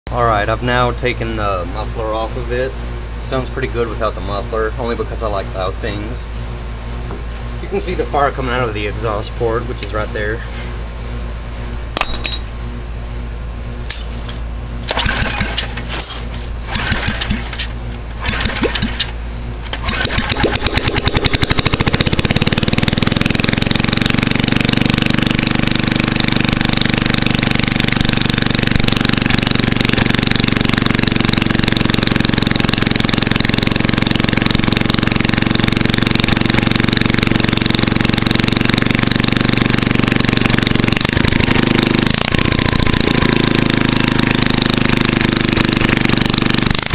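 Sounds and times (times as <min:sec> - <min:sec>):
small engine running without muffler: 0:14.3 - 0:46.9.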